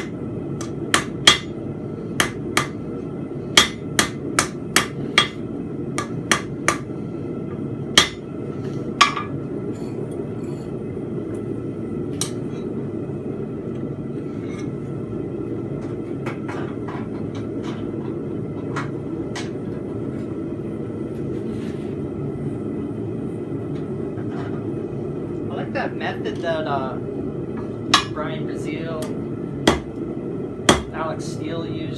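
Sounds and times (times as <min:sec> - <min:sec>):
hammer striking steel on anvil: 0:00.0 - 0:01.5, 0:02.2 - 0:02.8, 0:03.6 - 0:05.4, 0:06.0 - 0:06.9, 0:08.0 - 0:08.2, 0:27.9 - 0:28.2, 0:29.7 - 0:29.9, 0:30.7 - 0:30.9.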